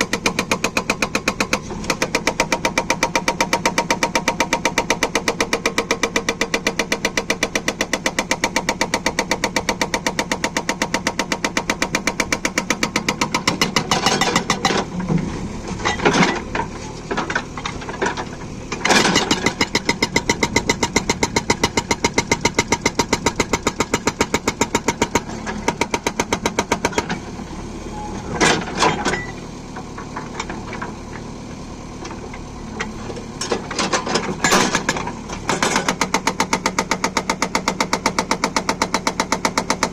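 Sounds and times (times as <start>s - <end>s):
diesel engine running: 0.0s - 39.9s
hydraulic breaker hammering: 11.8s - 14.9s.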